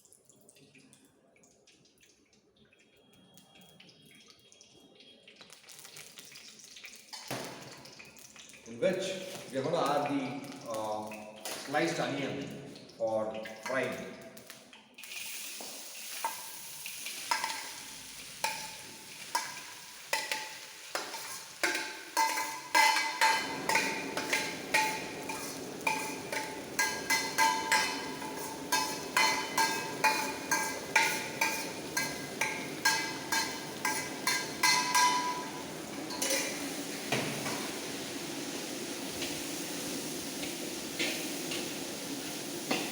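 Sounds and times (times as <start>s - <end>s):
onions sizzling in oil: 13.5s - 42.9s
utensil clanking on metal pot: 18.4s - 37.6s.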